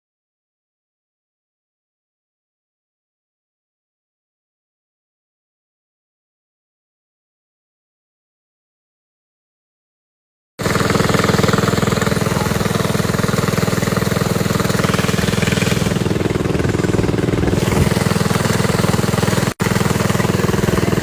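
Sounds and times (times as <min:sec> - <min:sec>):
small motorbike engine running: 0:10.6 - 0:21.0.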